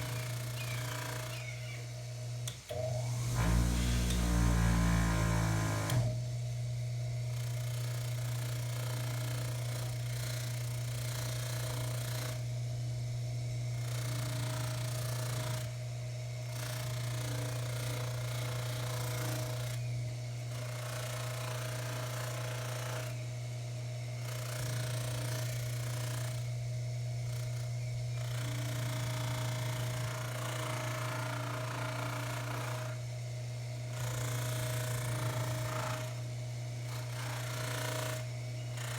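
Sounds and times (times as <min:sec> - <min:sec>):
lathe motor hum: 0:00.0 - 0:06.2, 0:34.0 - 0:38.9.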